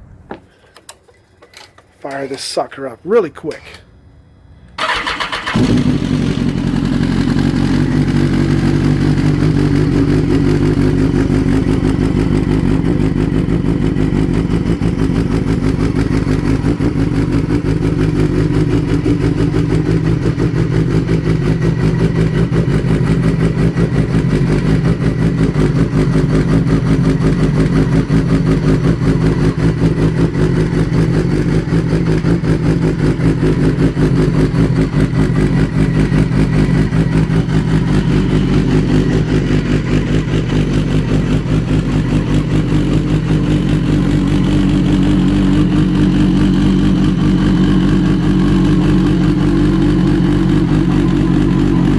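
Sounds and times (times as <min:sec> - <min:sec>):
motorcycle engine idling: 0:04.4 - 0:51.9.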